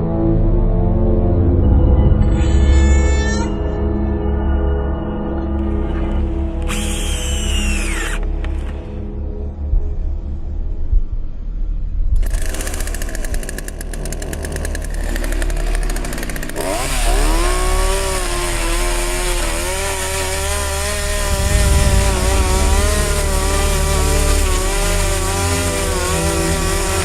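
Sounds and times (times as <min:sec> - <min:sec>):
chainsaw cutting through book: 0:06.6 - 0:08.8, 0:12.2 - 0:27.0.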